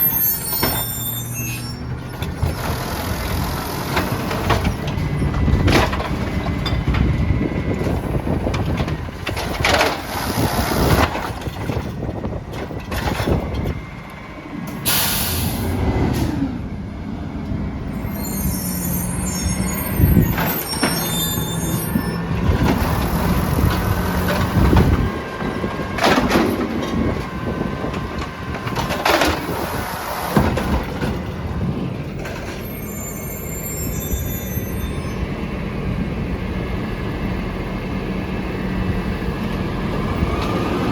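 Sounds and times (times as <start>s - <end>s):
garbage truck engine running: 0.0s - 18.2s, 18.9s - 34.6s
knocks and clatter: 3.9s - 13.8s, 22.4s - 31.4s
air brake hiss: 14.8s - 16.5s.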